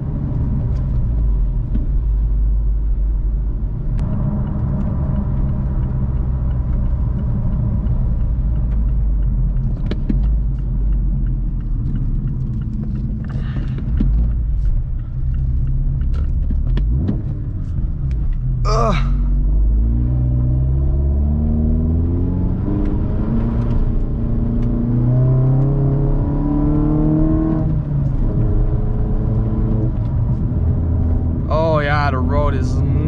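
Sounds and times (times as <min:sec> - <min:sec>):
car engine running: 0:00.0 - 0:20.2, 0:28.0 - 0:33.0
road noise: 0:00.0 - 0:33.0.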